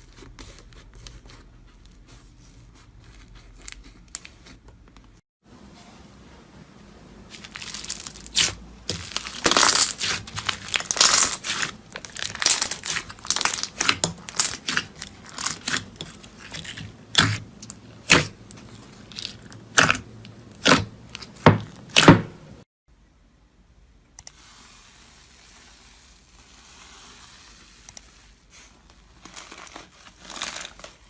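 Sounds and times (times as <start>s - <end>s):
slime crackling and snapping: 7.4s - 17.4s
slime popping: 7.4s - 17.4s.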